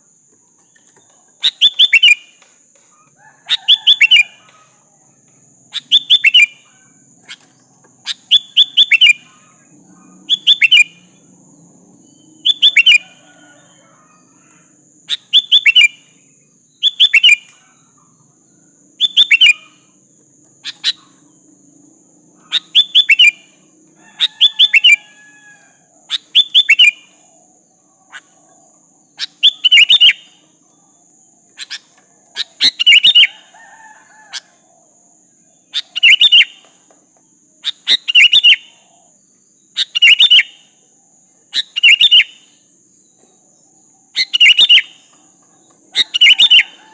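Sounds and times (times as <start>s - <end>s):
bulbul calling: 0.7s - 4.8s, 5.7s - 11.2s, 12.1s - 13.6s, 15.1s - 16.2s, 16.8s - 18.2s, 19.0s - 20.0s, 20.6s - 21.4s, 22.4s - 23.6s, 24.2s - 25.2s, 26.1s - 30.5s, 31.6s - 33.5s, 35.7s - 36.8s, 37.6s - 39.1s, 39.7s - 40.7s, 41.5s - 42.6s, 44.1s - 46.9s.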